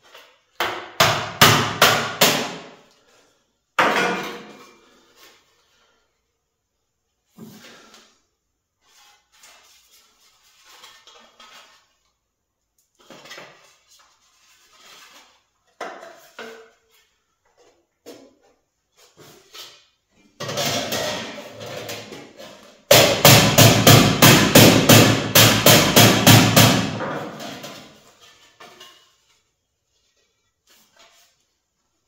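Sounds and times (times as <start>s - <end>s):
hammer striking metal sheet: 22.9s - 27.7s.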